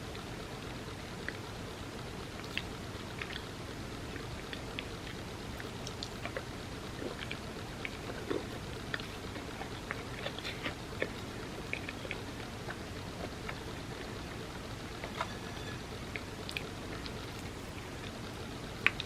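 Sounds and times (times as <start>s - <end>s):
low background hum: 0.0s - 19.0s
wet chewing with mouth clicks: 1.1s - 1.6s, 2.2s - 19.0s.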